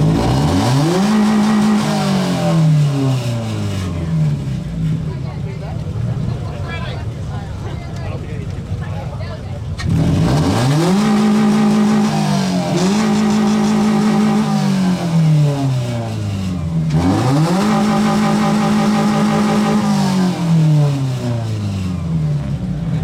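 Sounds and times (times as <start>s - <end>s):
car engine revving hard: 0.0s - 23.0s.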